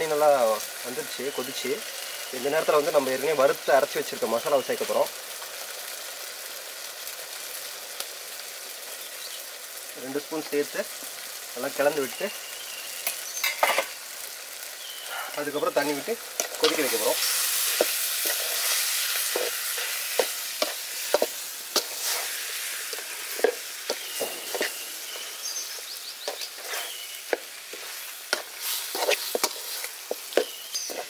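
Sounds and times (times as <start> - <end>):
meat sizzling in a pot: 0.0 - 31.0
metal spatula scraping pot: 15.8 - 25.2, 26.2 - 31.0.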